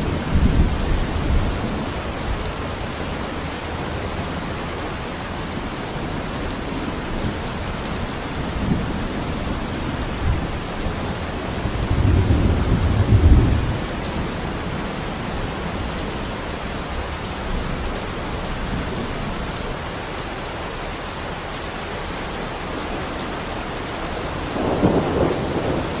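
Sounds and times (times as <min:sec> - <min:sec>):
thunder rumbling: 0:00.0 - 0:03.2, 0:07.1 - 0:16.2, 0:22.7 - 0:26.0
heavy rain hissing: 0:00.0 - 0:26.0.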